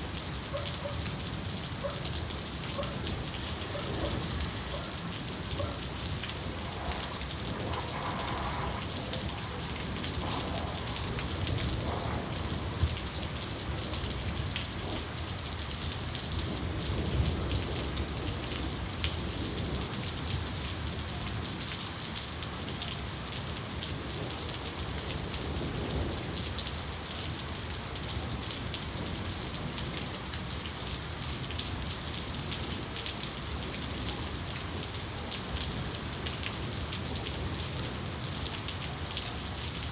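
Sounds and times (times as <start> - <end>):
rain falling: 0.0 - 39.9
low rumble of thunder: 2.3 - 20.2.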